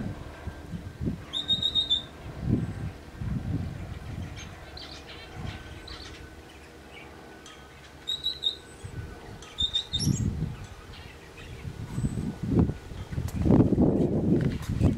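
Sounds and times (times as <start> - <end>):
small songbirds chirping: 1.3 - 12.3.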